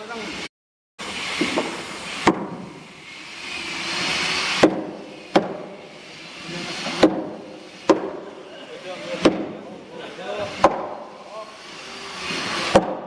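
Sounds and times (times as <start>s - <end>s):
rushing hiss: 1.0s - 12.8s
tool strikes on wood: 1.4s - 2.8s, 4.5s - 5.8s, 6.9s - 8.4s, 9.2s - 9.7s, 10.4s - 11.1s, 12.6s - 13.0s.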